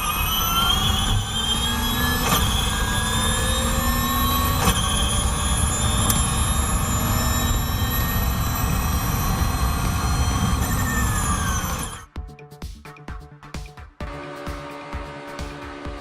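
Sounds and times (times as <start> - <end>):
quick gear changes: 0.0 - 12.1
racing engine accelerating: 0.0 - 12.1, 14.0 - 16.0.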